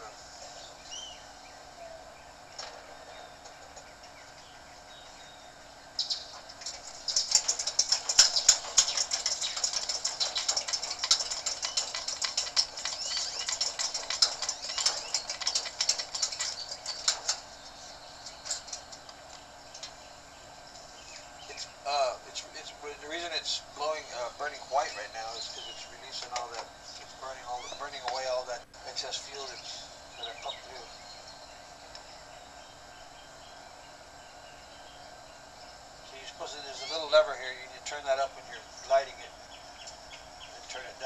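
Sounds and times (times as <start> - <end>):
burner crackling and sputtering: 0.0 - 32.5
camp stove burner hiss: 0.0 - 41.0.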